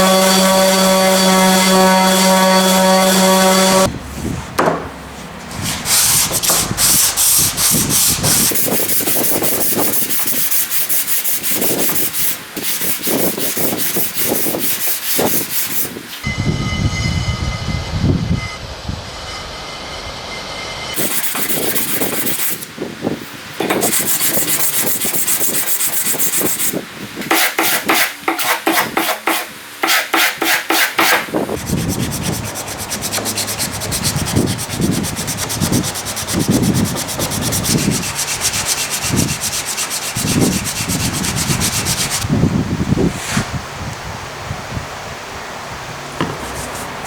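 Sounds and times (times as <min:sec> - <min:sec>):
hand sanding and rasping wood: 0:00.0 - 0:04.5, 0:05.4 - 0:16.1, 0:21.0 - 0:22.7, 0:23.6 - 0:42.2.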